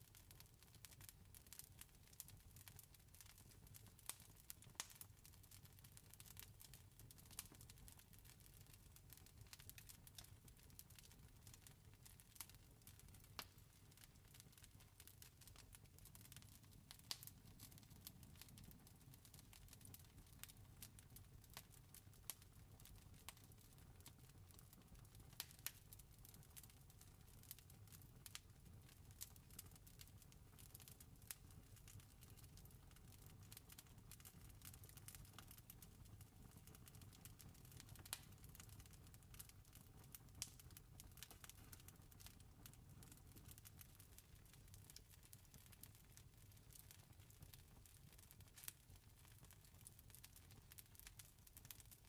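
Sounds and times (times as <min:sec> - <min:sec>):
campfire crackling: 0:13.2 - 0:23.4, 0:25.4 - 0:25.9, 0:30.5 - 0:47.2.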